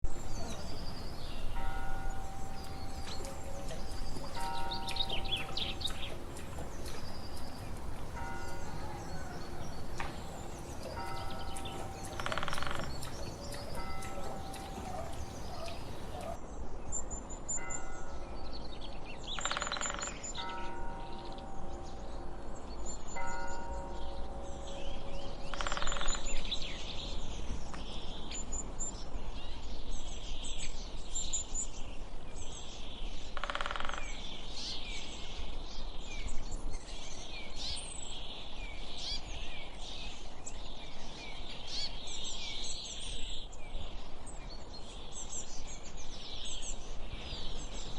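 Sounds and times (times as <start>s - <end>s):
birds chirping and whistling: 0.1s - 16.4s.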